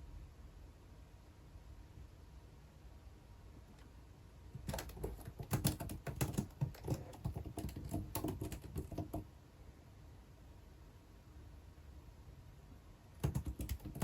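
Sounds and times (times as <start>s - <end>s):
typing on computer keyboard: 4.6s - 9.3s, 13.2s - 14.0s.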